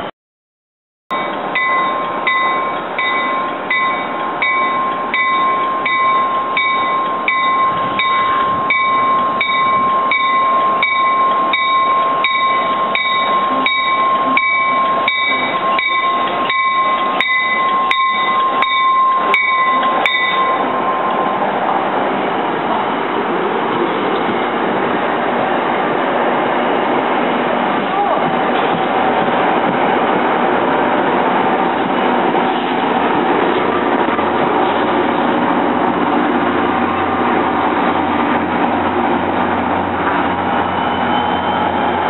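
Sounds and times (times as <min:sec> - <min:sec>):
train bell ringing: 0:01.1 - 0:23.2, 0:40.6 - 0:42.0
sharp clicks of rail cars: 0:01.1 - 0:42.0
wheels squealing on rails: 0:01.1 - 0:42.0.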